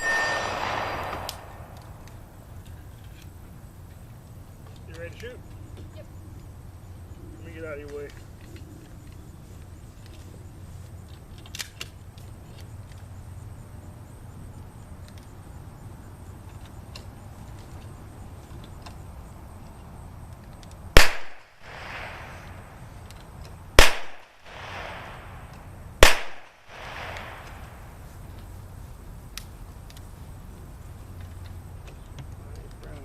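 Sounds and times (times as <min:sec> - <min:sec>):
gunshots with echo: 0:00.0 - 0:02.0, 0:21.0 - 0:22.7, 0:23.8 - 0:27.9.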